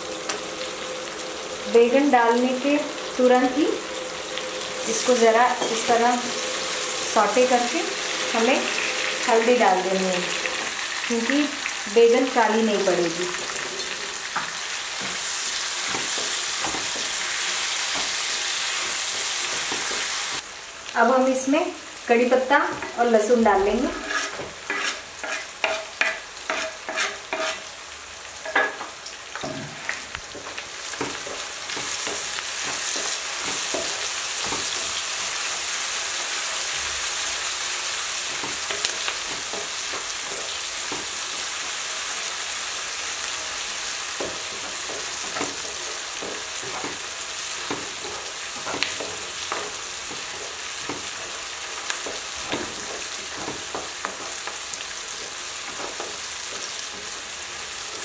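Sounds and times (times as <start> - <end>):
vegetables sizzling in oil: 0.0 - 58.0
wooden spatula scraping: 23.7 - 27.7.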